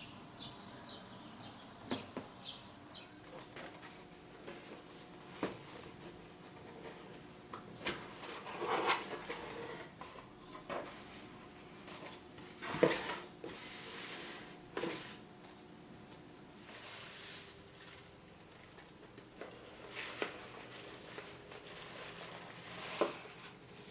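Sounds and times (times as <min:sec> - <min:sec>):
rustling hisses: 0:16.6 - 0:18.0.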